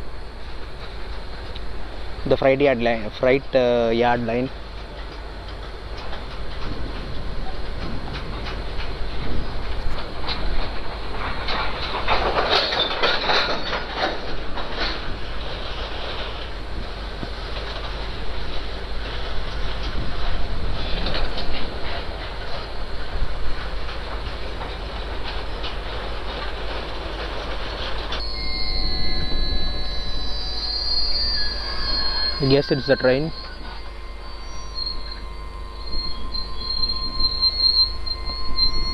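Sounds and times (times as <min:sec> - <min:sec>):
freight train wagons rumbling past: 0:00.0 - 0:38.9
high-pitched tones: 0:28.2 - 0:38.9.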